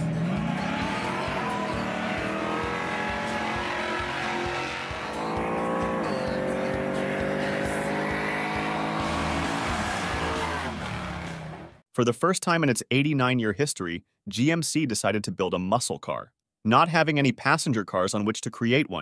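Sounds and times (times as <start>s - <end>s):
car engines accelerating hard: 0.0s - 11.8s.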